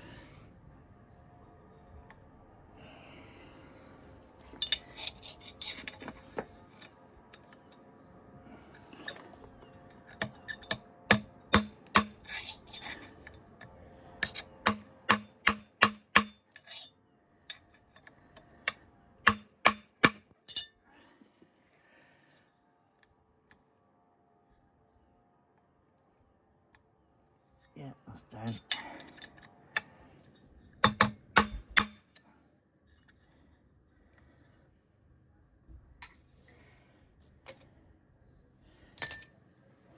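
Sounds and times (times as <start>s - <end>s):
tools clattering: 4.5s - 7.8s, 14.2s - 16.9s, 19.7s - 20.7s
hammer tapping metal punch: 10.2s - 12.4s, 14.2s - 16.4s, 18.7s - 20.6s, 30.8s - 32.2s.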